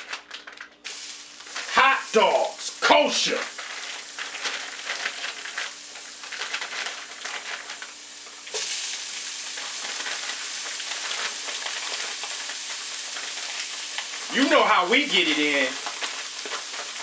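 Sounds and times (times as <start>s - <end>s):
food sizzling in a frying pan: 0.8s - 17.0s.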